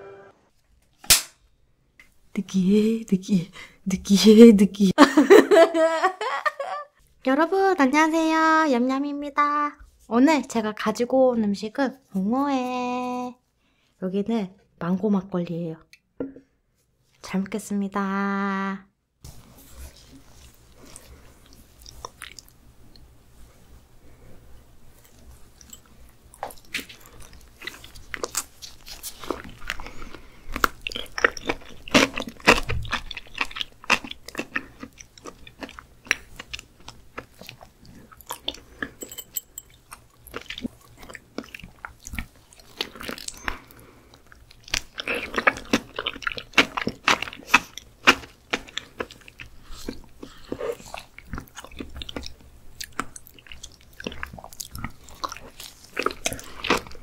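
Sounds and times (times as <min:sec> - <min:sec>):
chewing and mouth sounds: 0:20.0 - 0:23.1, 0:25.0 - 0:57.0.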